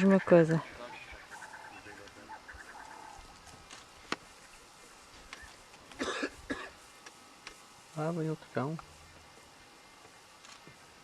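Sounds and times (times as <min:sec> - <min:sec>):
short chirping animal calls: 0:00.2 - 0:03.4.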